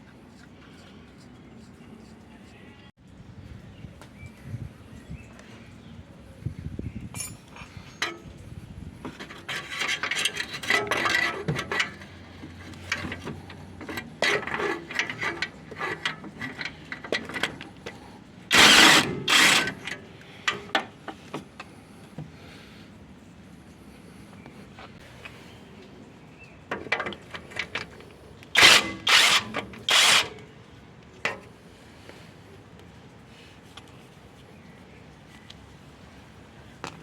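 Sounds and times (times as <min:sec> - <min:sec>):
metallic tool clinks: 0:07.1 - 0:07.6
ratchet clicking: 0:18.5 - 0:19.9, 0:28.6 - 0:30.4.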